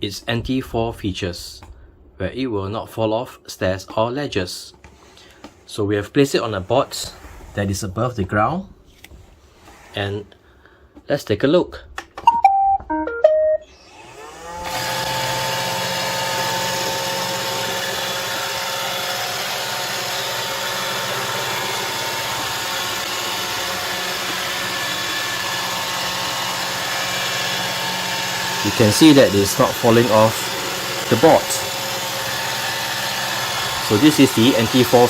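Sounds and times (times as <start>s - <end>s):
robot vacuum beeping tune: 12.3s - 13.8s
vacuum motor and brushes whining: 13.6s - 35.0s.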